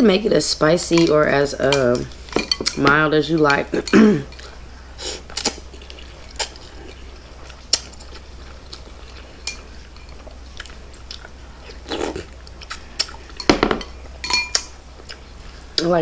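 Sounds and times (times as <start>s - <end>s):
chewing noodles: 5.3s - 13.4s.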